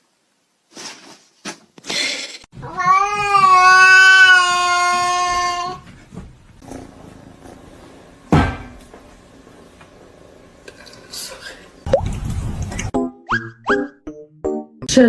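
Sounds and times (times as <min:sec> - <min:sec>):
cat meowing: 0:02.6 - 0:05.8.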